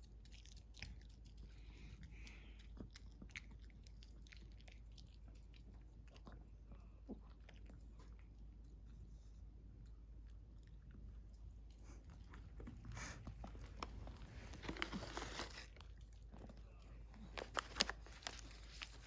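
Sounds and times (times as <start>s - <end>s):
dog chewing crunchy treat: 0.0s - 8.8s, 9.8s - 19.0s.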